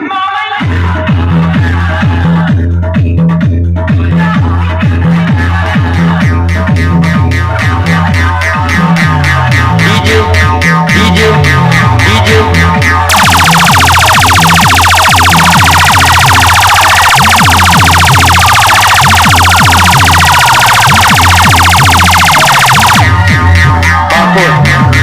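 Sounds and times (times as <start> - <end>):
electronic siren alarm buzz: 13.1 - 23.2
deep bass beat: 13.1 - 23.8.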